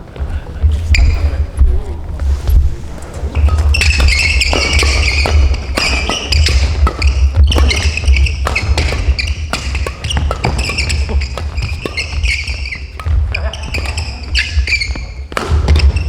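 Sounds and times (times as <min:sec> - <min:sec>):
shoes squeaking on floor: 0:00.0 - 0:16.0
racket hitting shuttlecock: 0:03.3 - 0:16.0.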